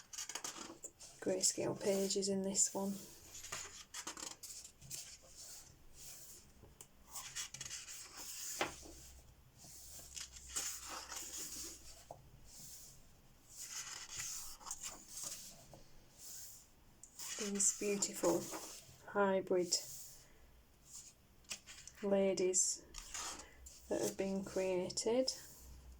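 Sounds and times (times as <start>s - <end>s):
light ticks of paper: 0.0s - 1.1s, 3.3s - 5.7s, 6.7s - 9.0s, 10.0s - 12.2s, 13.6s - 15.8s, 21.0s - 22.0s
paper pages turning: 0.0s - 16.4s, 17.1s - 19.0s, 20.9s - 22.0s, 22.8s - 24.6s.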